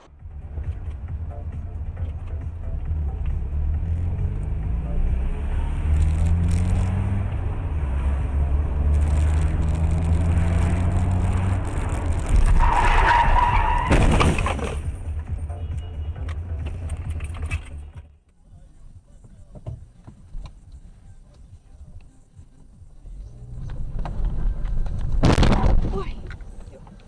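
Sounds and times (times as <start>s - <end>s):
car engine speeding up: 2.8s - 13.8s
tyres screeching: 9.0s - 14.7s.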